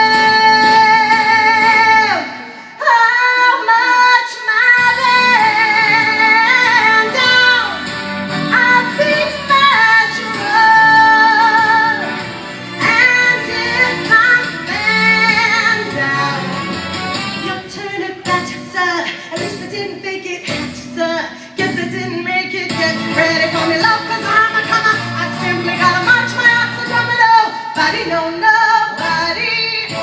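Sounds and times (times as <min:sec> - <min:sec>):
woman singing show tune: 0:00.0 - 0:07.9, 0:08.5 - 0:30.0
singer breathing: 0:02.4 - 0:02.8, 0:12.3 - 0:12.8, 0:19.1 - 0:19.4, 0:21.3 - 0:21.6.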